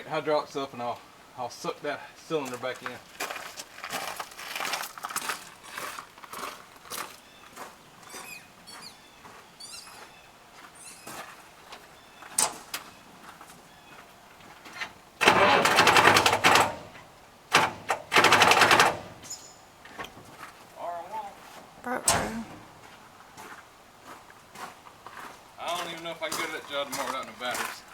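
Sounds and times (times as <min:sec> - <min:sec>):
engine cranking on starter: 0:15.2 - 0:19.3.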